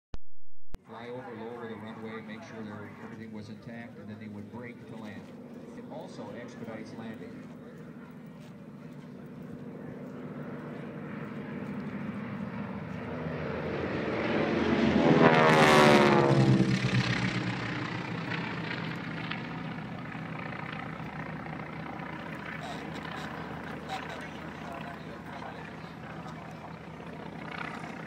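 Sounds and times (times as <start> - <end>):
propeller airplane flying past: 0.8 - 28.0.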